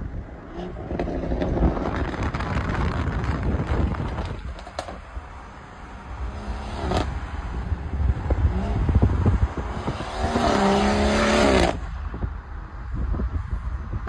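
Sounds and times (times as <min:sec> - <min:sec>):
car engine accelerating hard: 0:05.7 - 0:12.0.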